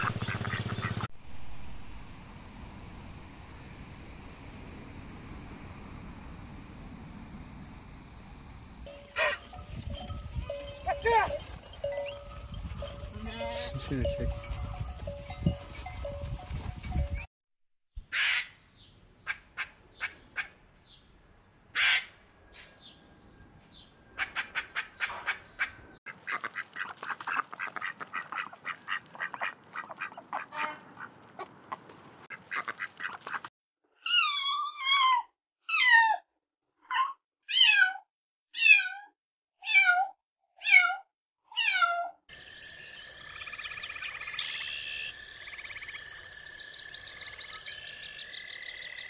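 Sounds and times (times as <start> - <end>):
duck splashing in water: 26.1 - 31.1.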